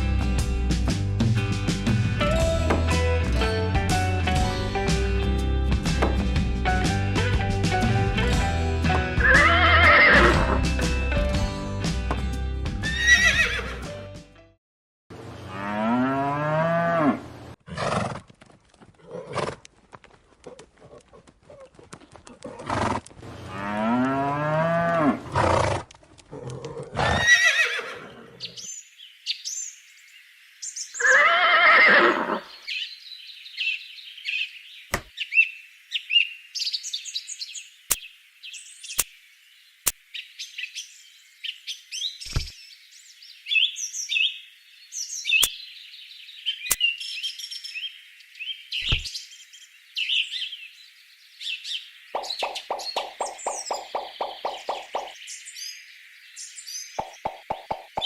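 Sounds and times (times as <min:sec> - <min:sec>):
birds chirping: 0:26.5 - 0:58.0
loud farm animal calls: 0:52.2 - 0:55.2.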